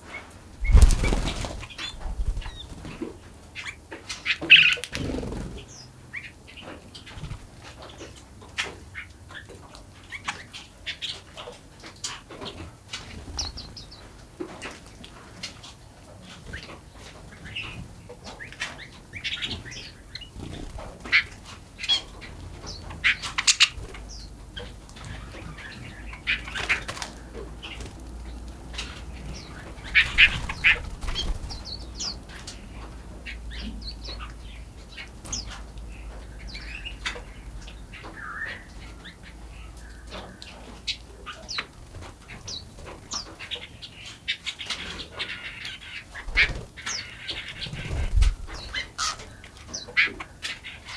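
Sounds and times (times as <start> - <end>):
birds chirping: 0.2 - 8.2, 16.4 - 50.9
wings fluttering: 0.6 - 3.2, 4.5 - 5.8, 20.2 - 21.4, 25.0 - 32.2, 46.1 - 49.4.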